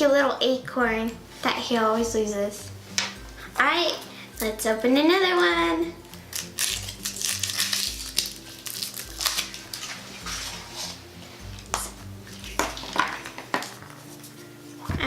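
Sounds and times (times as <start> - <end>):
soft background music: 0.0 - 15.0
foil wrapper crinkling: 6.1 - 11.7.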